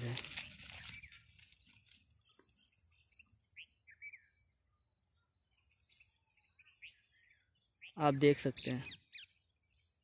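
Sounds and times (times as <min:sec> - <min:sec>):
faint bird chirps: 0:00.4 - 0:10.0.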